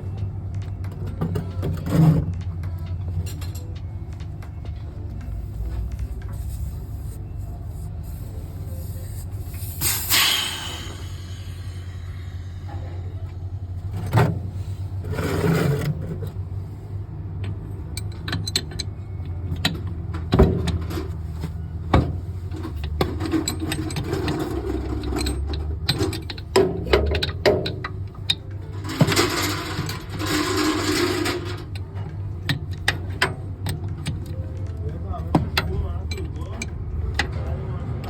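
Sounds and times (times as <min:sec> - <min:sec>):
steady low hum: 0:02.2 - 0:15.2
air hissing bursts: 0:07.8 - 0:13.0.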